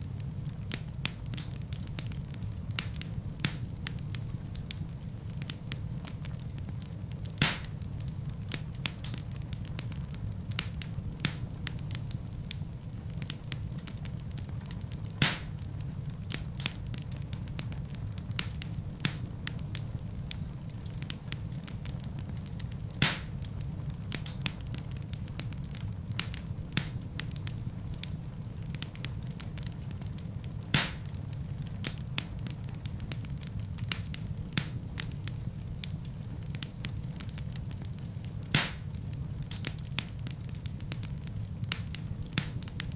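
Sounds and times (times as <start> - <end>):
low fire rumble: 0.0 - 42.9
wood fire crackling: 0.0 - 42.9
loud fire pop: 7.4 - 7.8, 15.2 - 15.6, 23.0 - 23.4, 30.7 - 31.1, 38.5 - 38.9.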